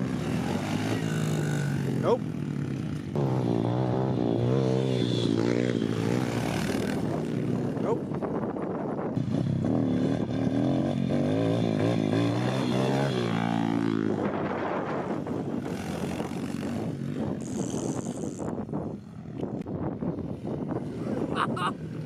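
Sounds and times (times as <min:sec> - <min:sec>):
dirt bike engine revving: 0:00.0 - 0:08.0, 0:09.2 - 0:18.8.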